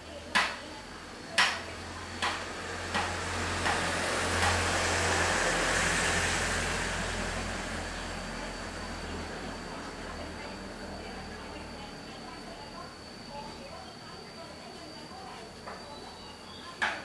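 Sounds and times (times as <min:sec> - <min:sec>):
road vehicle passing: 0:01.8 - 0:12.2.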